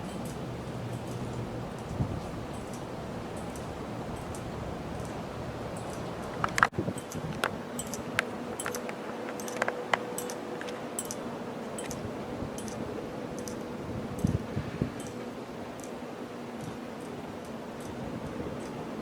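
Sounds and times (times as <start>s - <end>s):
light ticks and clicks: 0.0s - 5.2s, 13.4s - 14.4s, 16.6s - 18.0s
ceiling fan whoosh: 0.0s - 19.0s
faint motor hum: 0.0s - 19.0s.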